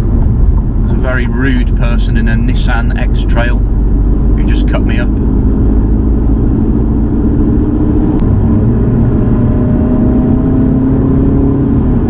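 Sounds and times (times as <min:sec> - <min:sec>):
car engine accelerating: 0:00.0 - 0:12.0
road and tyre rumble: 0:00.0 - 0:12.0.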